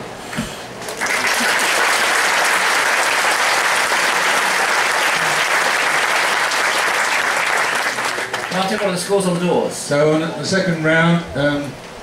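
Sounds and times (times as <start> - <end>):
audience applauding: 0.8 - 9.3.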